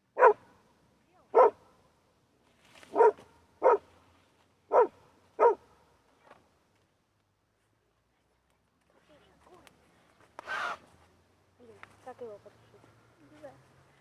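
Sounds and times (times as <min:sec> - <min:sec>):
dog barking: 0:00.2 - 0:00.5, 0:01.3 - 0:01.6, 0:02.9 - 0:03.9, 0:04.7 - 0:05.7.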